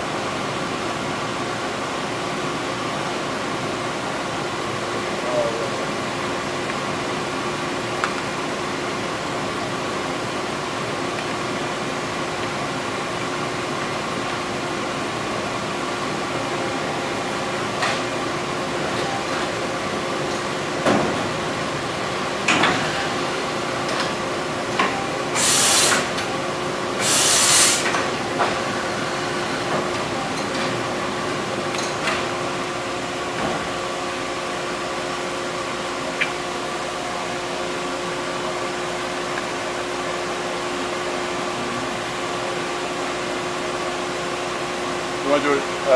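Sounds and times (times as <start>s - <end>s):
hissing bursts: 25.4s - 26.1s, 27.0s - 27.9s.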